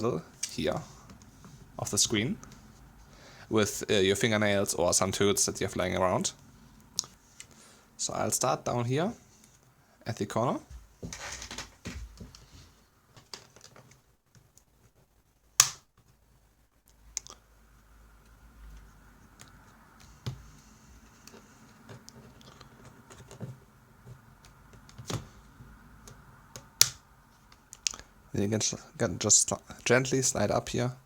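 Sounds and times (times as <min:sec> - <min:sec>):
plastic clips snapping: 0:15.6 - 0:15.8, 0:26.1 - 0:27.0.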